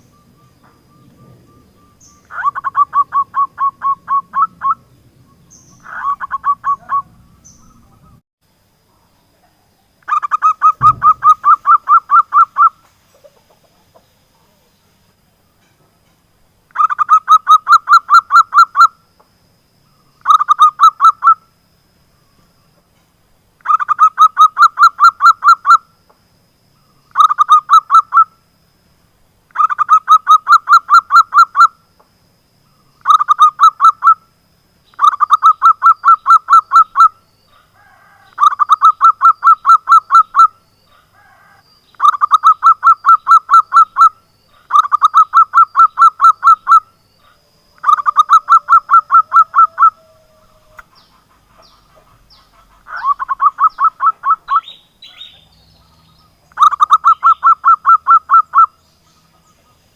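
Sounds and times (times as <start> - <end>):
dove calling in staccato notes: 10.1 - 14.0, 33.0 - 34.2, 35.0 - 59.4.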